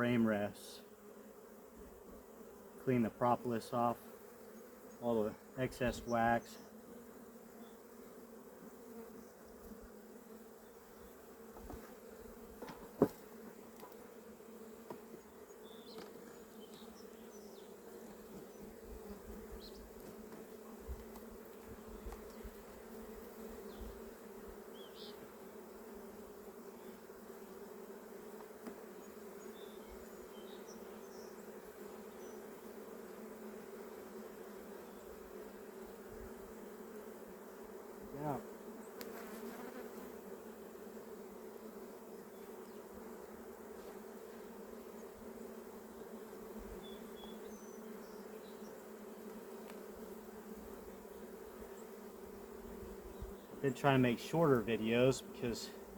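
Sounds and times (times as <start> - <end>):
honeybees humming: 0.0 - 55.9.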